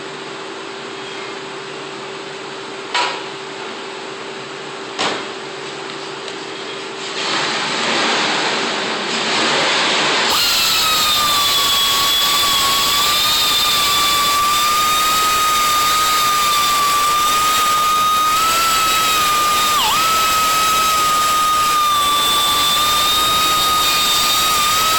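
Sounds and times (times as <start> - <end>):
power tool high whine: 9.3 - 24.9.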